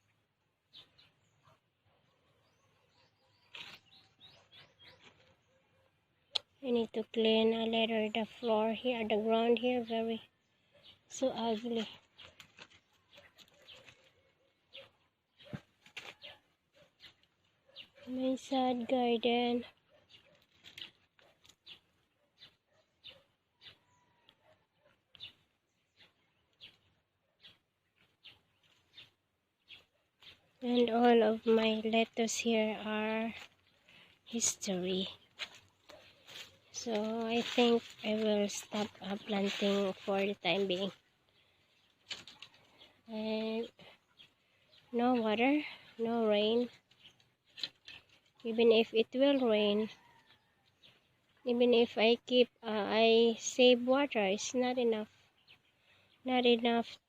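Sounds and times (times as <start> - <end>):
faint bird chirps: 0.0 - 6.6
footsteps on dry leaves: 33.2 - 41.1.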